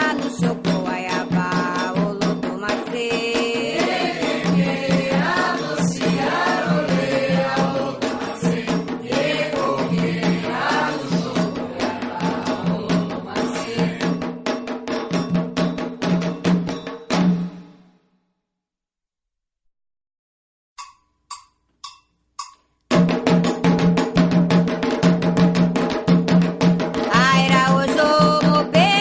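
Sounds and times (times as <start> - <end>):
fast hand percussion: 0.0 - 17.7, 20.8 - 29.0
chanted vocals: 3.3 - 14.2.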